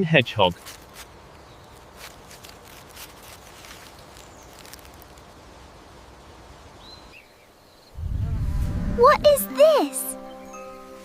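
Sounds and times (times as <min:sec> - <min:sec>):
rustling in dry leaves: 0:00.4 - 0:07.2.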